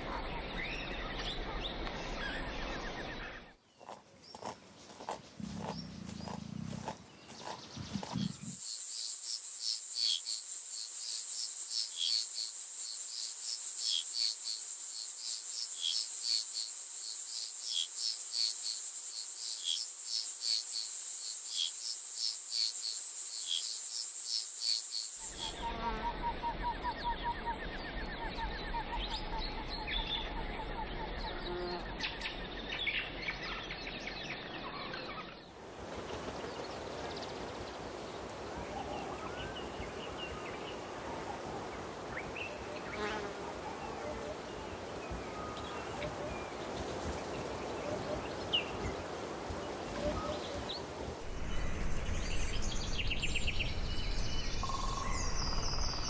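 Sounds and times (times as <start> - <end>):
trilling insects and birds: 0.0 - 56.0.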